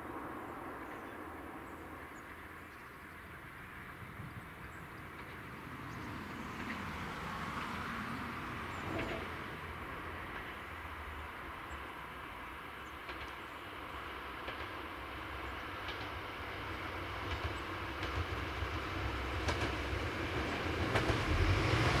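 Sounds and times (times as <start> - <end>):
train running on rails: 0.0 - 22.0.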